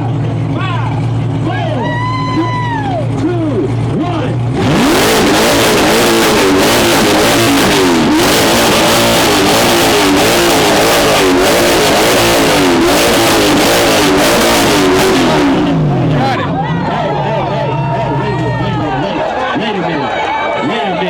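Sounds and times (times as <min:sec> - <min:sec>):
car engine revving through loud exhaust: 0:03.7 - 0:16.5.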